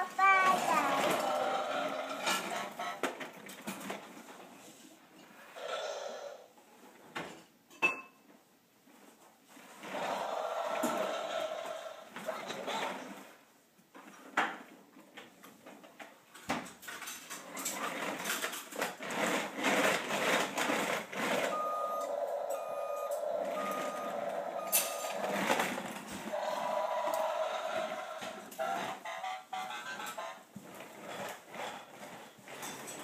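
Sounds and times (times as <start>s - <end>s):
truck reversing alarm beeping: 21.4s - 25.8s.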